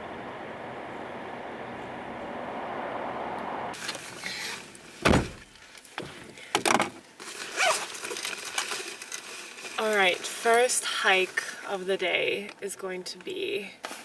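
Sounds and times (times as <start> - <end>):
loud thump: 5.0 - 5.5.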